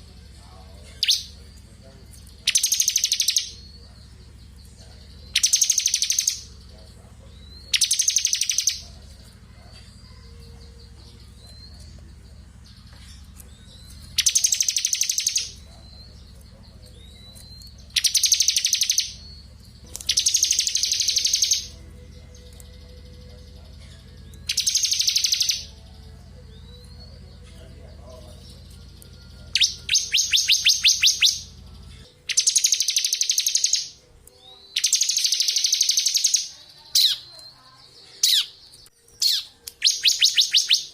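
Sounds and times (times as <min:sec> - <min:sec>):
low steady hum: 0:00.0 - 0:32.6
soft rising bird chirps: 0:00.0 - 0:37.5
bird high rapid trilling: 0:02.2 - 0:03.7, 0:05.2 - 0:06.6, 0:07.3 - 0:09.0, 0:13.4 - 0:16.2, 0:17.0 - 0:21.9, 0:24.5 - 0:25.8, 0:29.5 - 0:31.6, 0:32.3 - 0:37.3, 0:39.2 - 0:40.9.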